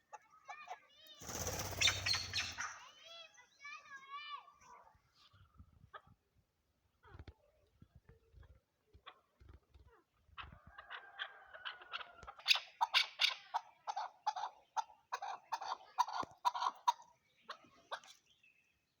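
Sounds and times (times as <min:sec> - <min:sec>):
partridge chuk calls: 0:01.2 - 0:02.9, 0:11.9 - 0:18.2.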